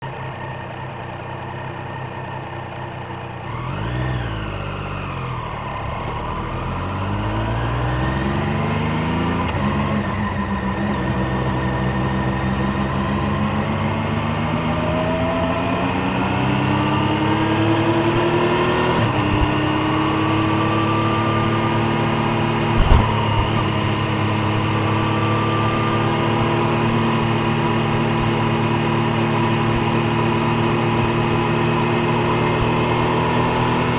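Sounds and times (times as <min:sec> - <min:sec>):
motorcycle engine revving: 0:01.6 - 0:33.9
short knock: 0:22.8 - 0:23.5.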